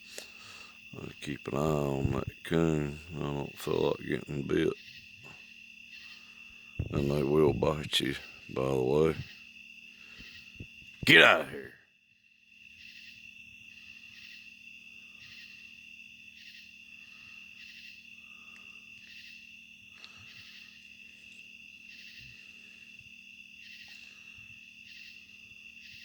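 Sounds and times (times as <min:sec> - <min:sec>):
pulsing insect call: 0:00.0 - 0:11.7, 0:12.3 - 0:26.0
crickets and katydids trilling: 0:00.0 - 0:26.0
faint low hum: 0:06.0 - 0:11.7.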